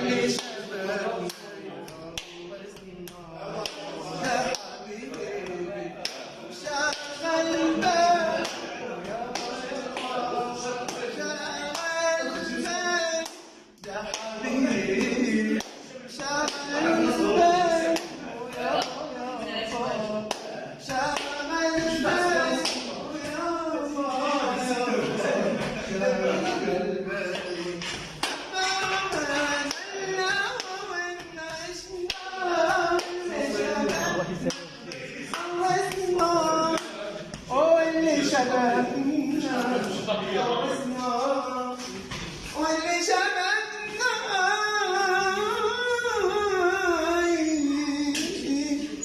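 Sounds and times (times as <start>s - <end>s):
man singing: 0.0s - 49.0s
hand claps: 0.2s - 19.1s, 20.2s - 23.5s, 27.3s - 37.6s, 48.1s - 48.4s.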